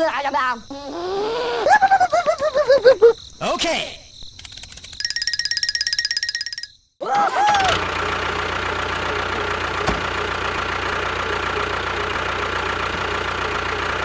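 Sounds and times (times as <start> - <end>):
sharp click: 4.2 - 5.1
engine idling: 7.4 - 14.0.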